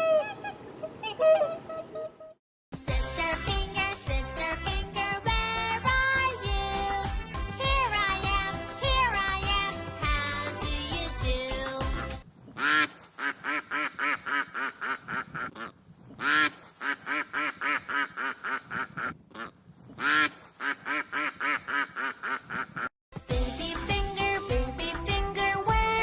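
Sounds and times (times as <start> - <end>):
duck quacking: 12.6 - 22.9.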